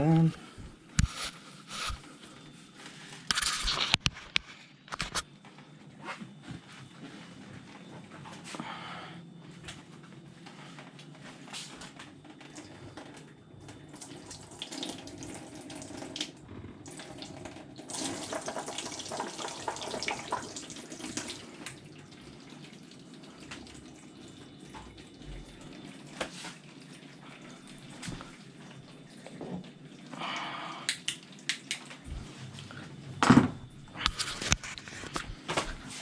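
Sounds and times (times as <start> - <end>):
tap water running into sink: 14.0 - 24.0.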